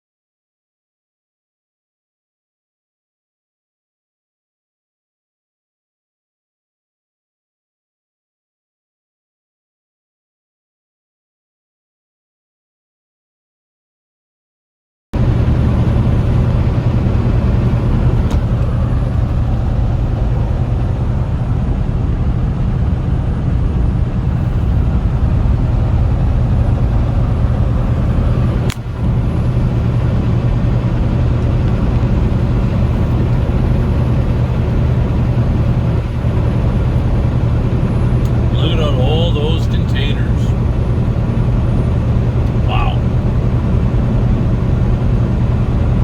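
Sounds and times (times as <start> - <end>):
truck engine and road noise: 15.2 - 46.0.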